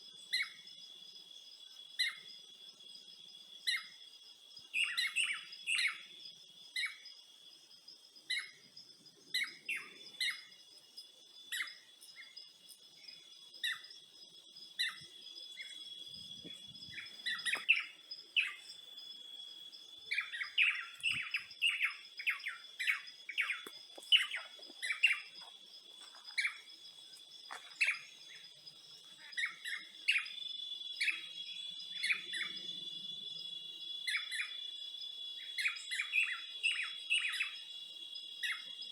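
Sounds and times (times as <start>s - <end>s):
high insect trill: 0.0s - 38.9s
birds chirping: 8.3s - 33.1s.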